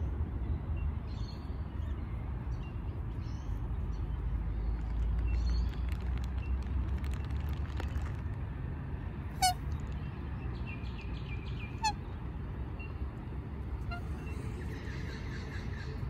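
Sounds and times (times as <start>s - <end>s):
rail bird squawking: 9.4s - 9.6s, 11.6s - 12.1s, 13.8s - 16.0s.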